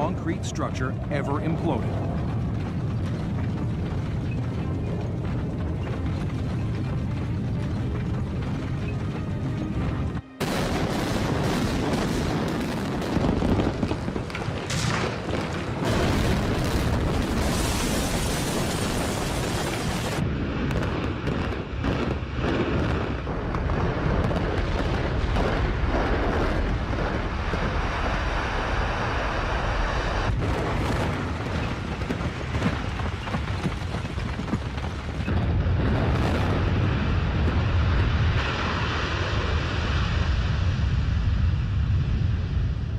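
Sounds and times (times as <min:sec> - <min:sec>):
concrete collapsing rumble: 0:00.0 - 0:42.9
demolition charges exploding: 0:10.4 - 0:29.2, 0:30.3 - 0:40.2.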